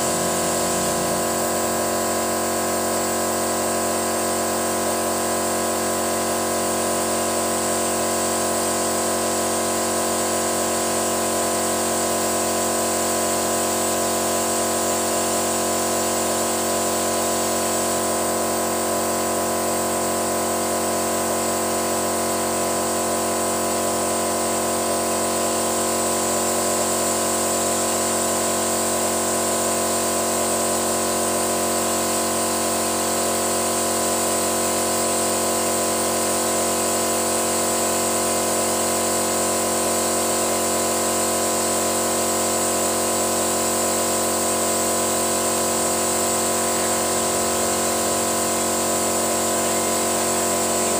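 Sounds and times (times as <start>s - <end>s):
machinery humming: 0.0s - 2.0s.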